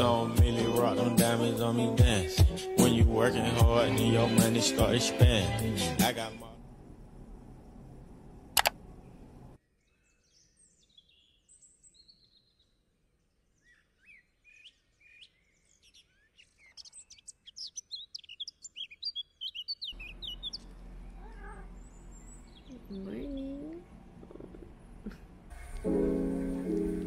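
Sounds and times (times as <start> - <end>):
low steady room hum: 6.4 - 9.6, 20.0 - 25.8
sharp click: 8.6 - 8.8
songbirds chirping: 8.9 - 26.0.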